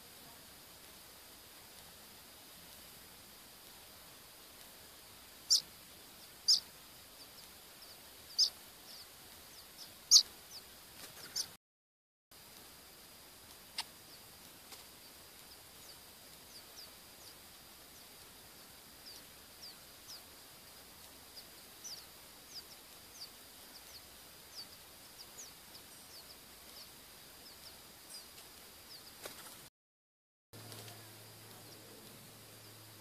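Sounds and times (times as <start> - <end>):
faint high-pitched whine: 0.0 - 11.6, 12.4 - 29.7, 30.6 - 33.0
high bird chirps: 5.4 - 11.6, 19.0 - 20.3, 21.3 - 28.3.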